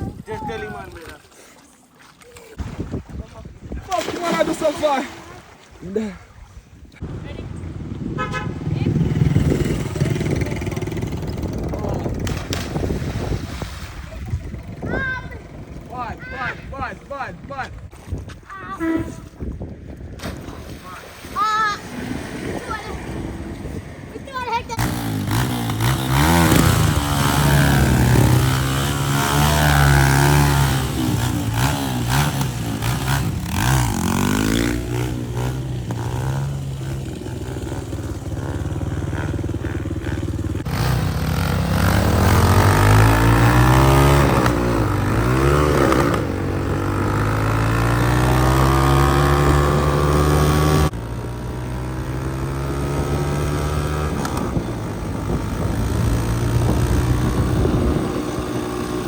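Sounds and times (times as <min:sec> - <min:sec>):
motorcycle engine revving: 0:08.1 - 0:13.2, 0:21.8 - 0:59.0.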